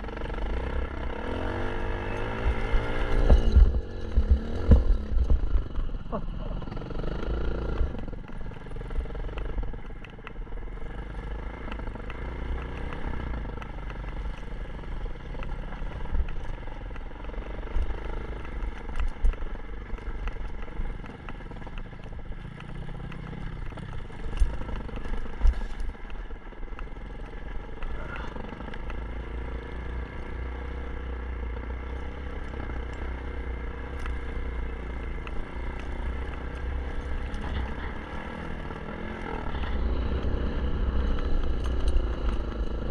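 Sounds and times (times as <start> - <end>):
dirt bike engine revving: 0.0 - 8.1, 27.7 - 42.9.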